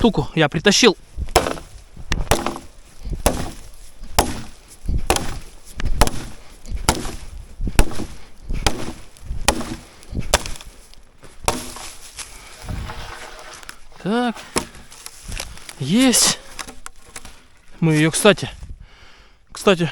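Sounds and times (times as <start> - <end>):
axe chopping log: 1.2 - 12.0, 14.5 - 14.8.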